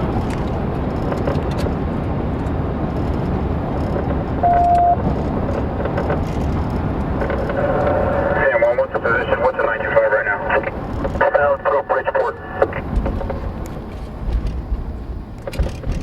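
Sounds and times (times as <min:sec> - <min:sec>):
car road and engine noise: 0:00.0 - 0:16.0
loud beep: 0:04.4 - 0:05.0.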